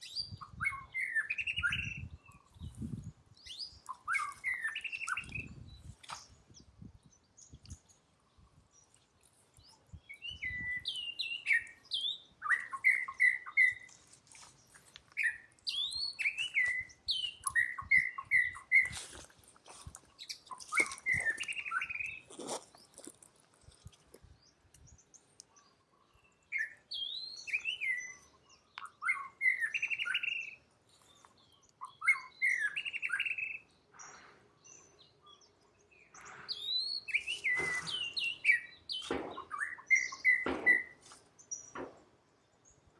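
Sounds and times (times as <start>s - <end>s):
knocks and rustles: 39.0s - 39.5s.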